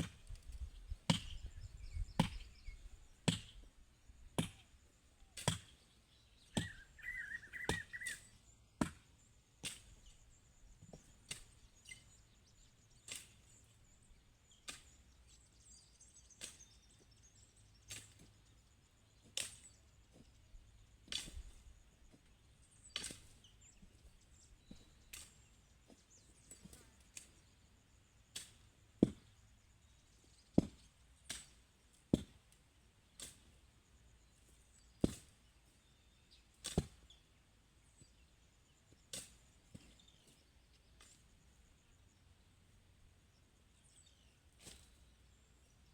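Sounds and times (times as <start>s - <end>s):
hand tool chopping: 1.1s - 1.4s, 3.2s - 3.6s, 4.4s - 4.6s, 5.4s - 5.7s, 8.8s - 9.0s, 23.0s - 24.0s, 28.3s - 29.3s, 30.6s - 32.4s, 33.2s - 33.5s, 35.0s - 35.4s, 36.6s - 37.0s, 44.6s - 45.0s.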